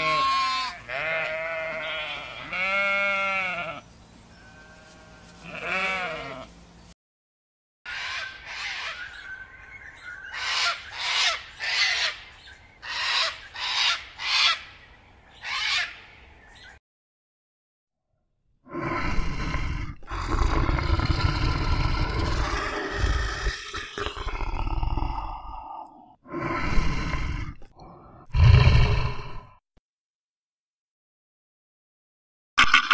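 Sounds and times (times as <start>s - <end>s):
sheep bleating: 0.0s - 6.6s
parrot squawking: 10.2s - 12.2s.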